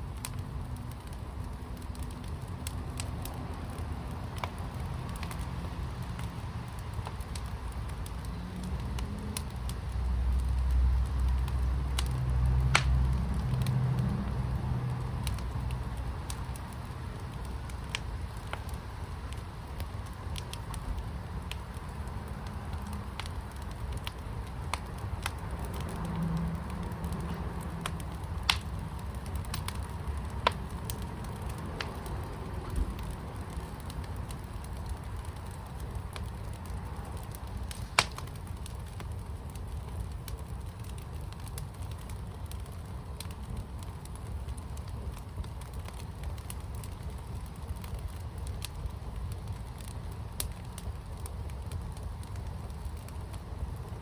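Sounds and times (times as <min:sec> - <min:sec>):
fire pit rumbling: 0:00.0 - 0:54.0
sharp fire pops: 0:00.0 - 0:54.0.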